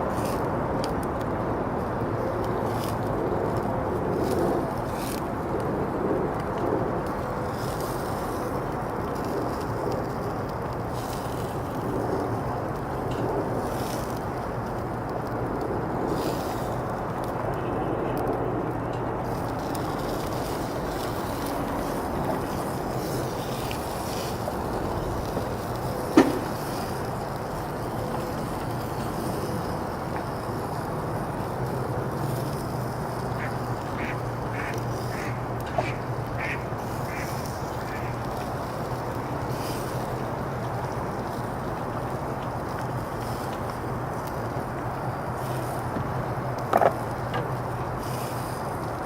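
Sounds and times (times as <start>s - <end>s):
duck quacking: 33.4s - 37.2s.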